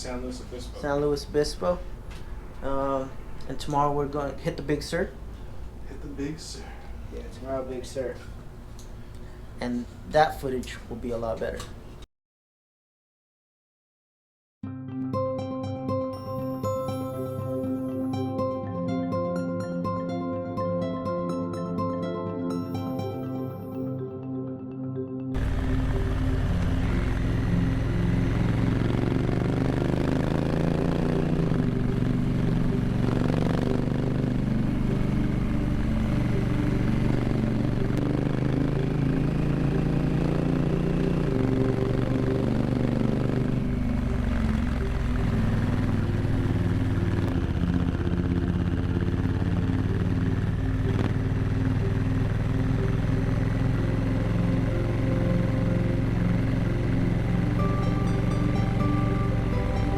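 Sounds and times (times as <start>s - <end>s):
motorcycle engine revving: 25.4s - 59.9s.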